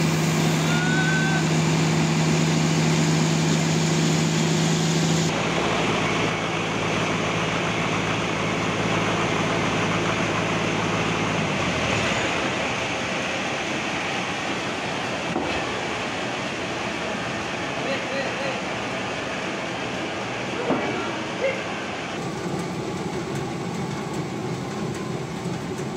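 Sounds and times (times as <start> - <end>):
bandsaw machine hum: 0.0 - 16.2.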